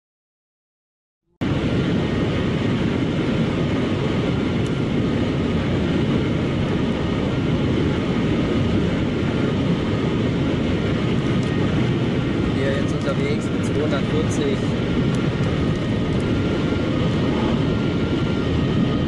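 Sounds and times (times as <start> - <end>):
car road and wind noise: 1.4 - 19.0.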